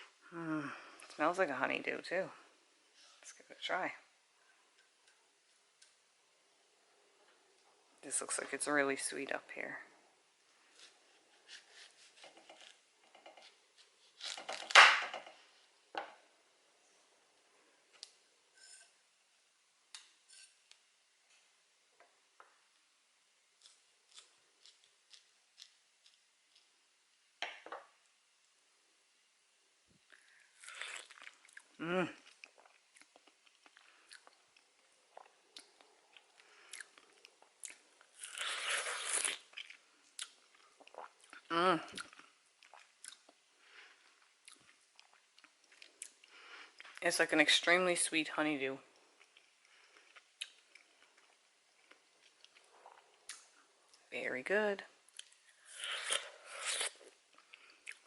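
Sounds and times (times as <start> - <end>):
utensil scraping melon flesh: 10.7 - 12.8, 13.4 - 14.8
person chewing juicy melon: 23.6 - 26.8, 30.2 - 43.4, 44.0 - 47.0, 49.0 - 54.0, 55.1 - 58.0.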